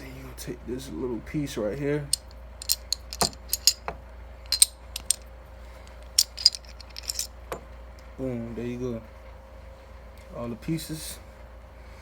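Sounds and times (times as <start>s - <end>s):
steel gun parts clicking: 2.2s - 5.2s, 5.9s - 7.6s.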